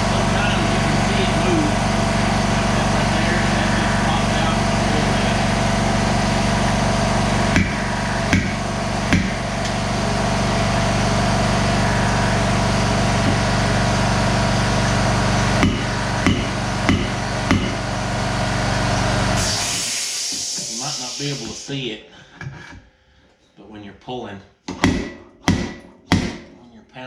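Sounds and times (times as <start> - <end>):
steady motor hum: 0.0 - 21.6
hammer on sheet metal: 15.6 - 17.8, 24.7 - 26.6.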